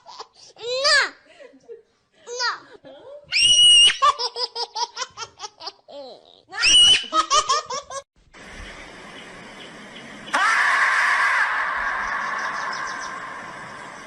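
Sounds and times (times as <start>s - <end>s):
steady hiss: 8.2s - 10.4s, 11.4s - 14.0s.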